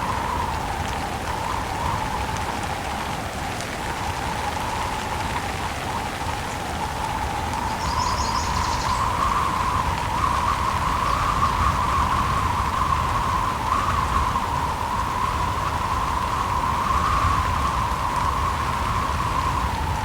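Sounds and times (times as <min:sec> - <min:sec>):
steady rain falling: 0:00.0 - 0:20.0
faint high chirping: 0:07.7 - 0:09.3.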